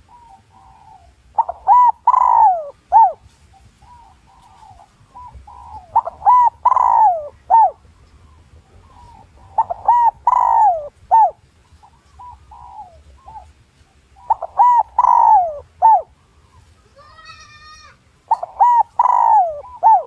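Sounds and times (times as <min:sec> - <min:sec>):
dove cooing: 0:00.0 - 0:17.6, 0:18.3 - 0:20.0.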